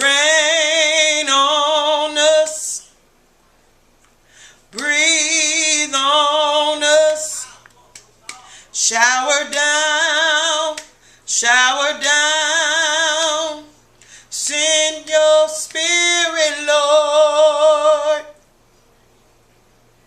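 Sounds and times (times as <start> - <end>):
woman singing unaccompanied: 0.0 - 2.9, 4.7 - 7.6, 8.8 - 18.4.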